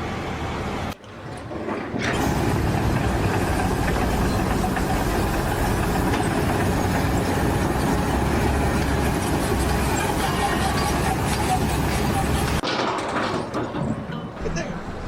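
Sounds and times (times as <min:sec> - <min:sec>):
engine low rumble: 0:02.2 - 0:12.6.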